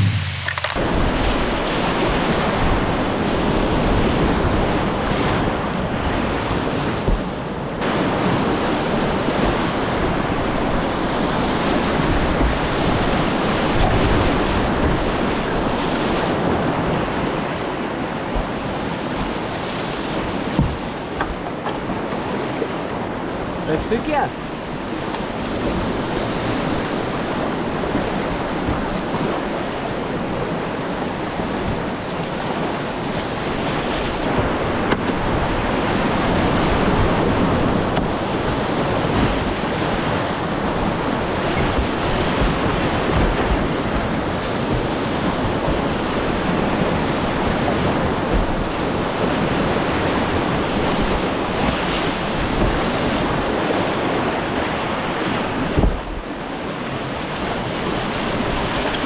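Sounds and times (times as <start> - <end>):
river rushing: 0.0 - 0.8.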